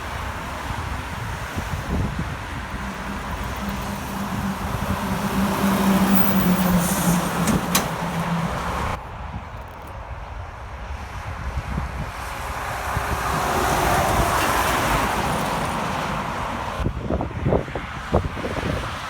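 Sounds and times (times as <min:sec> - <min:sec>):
heavy truck driving past: 0:00.1 - 0:09.0.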